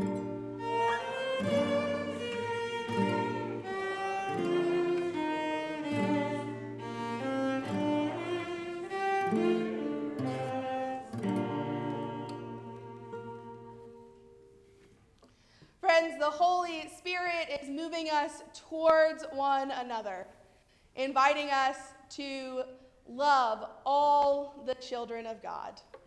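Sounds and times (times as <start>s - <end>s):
bowed strings slow melody: 0.0s - 14.4s.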